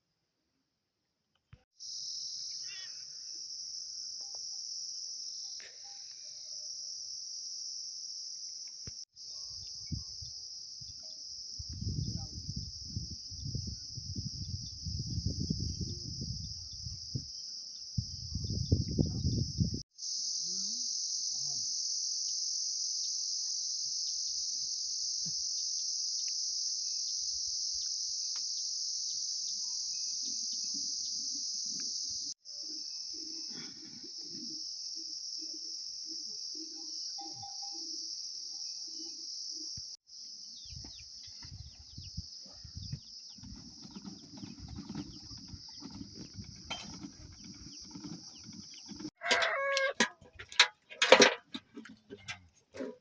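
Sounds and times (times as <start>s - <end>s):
insects shrilling: 1.8s - 3.5s, 20.0s - 50.0s
loud animal call: 49.2s - 50.0s.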